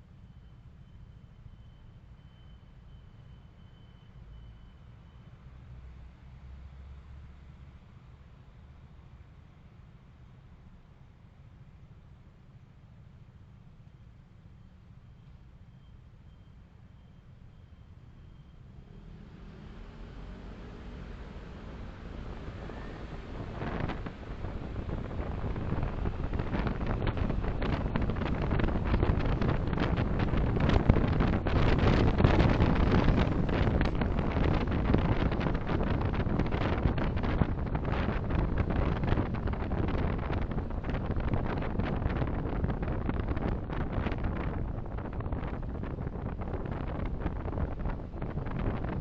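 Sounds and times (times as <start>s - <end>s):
car road and wind noise: 0.0s - 49.0s
wind buffeting microphone: 19.8s - 49.0s.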